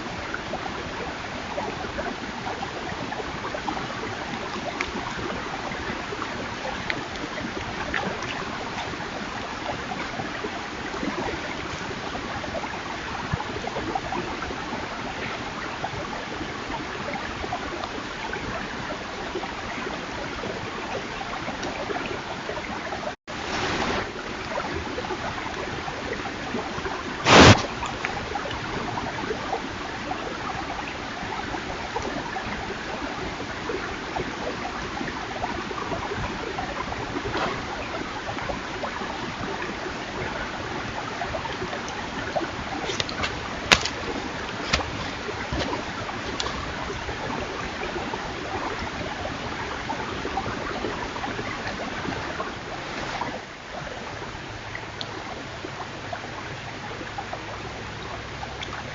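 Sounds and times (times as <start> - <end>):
rushing hiss with crackles: 23.3 - 24.2, 27.2 - 28.2, 52.8 - 53.4
loud burst of noise: 27.2 - 27.7.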